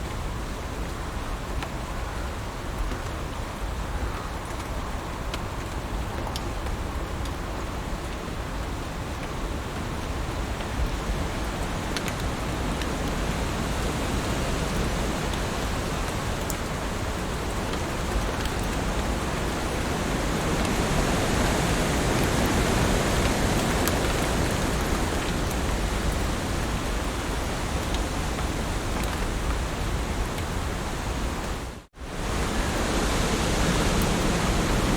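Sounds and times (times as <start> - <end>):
raindrop ticks: 4.4 - 19.9, 23.2 - 30.6
heavy rain hissing: 9.4 - 34.9.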